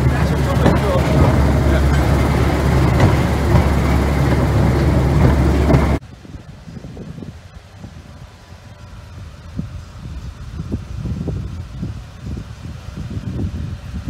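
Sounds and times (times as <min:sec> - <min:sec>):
train wheels rumbling on track: 0:00.0 - 0:06.0
faint wind noise: 0:00.0 - 0:14.0
low engine hum: 0:00.0 - 0:14.0.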